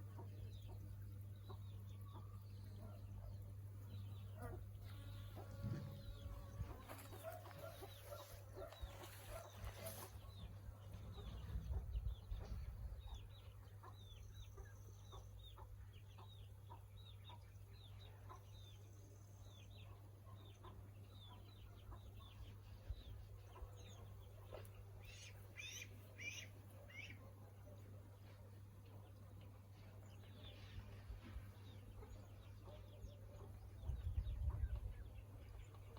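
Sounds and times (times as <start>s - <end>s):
bird peeping: 20.5s - 27.2s.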